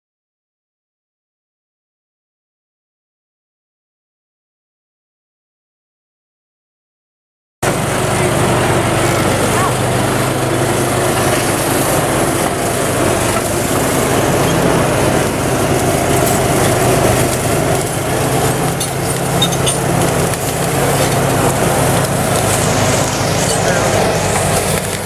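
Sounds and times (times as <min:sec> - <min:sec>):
bulldozer diesel engine running: 0:07.6 - 0:25.0.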